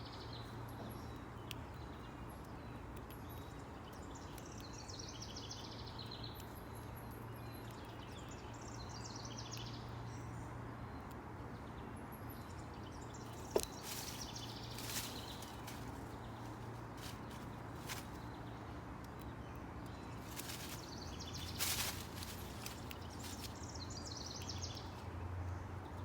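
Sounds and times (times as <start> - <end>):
songbirds chirping: 0.0 - 26.0
scratchy rustling: 13.3 - 18.3, 20.2 - 23.8.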